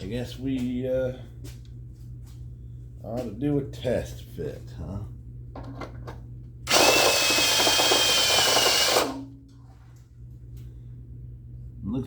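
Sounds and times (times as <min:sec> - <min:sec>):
power drill whining: 0:06.7 - 0:09.2.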